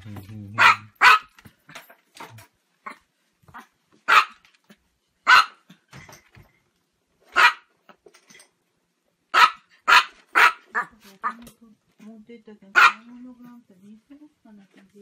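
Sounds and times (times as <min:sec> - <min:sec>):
small dog barking: 0:00.6 - 0:01.3, 0:03.6 - 0:04.4, 0:05.2 - 0:05.7, 0:07.3 - 0:07.7, 0:09.3 - 0:11.4, 0:12.8 - 0:13.1.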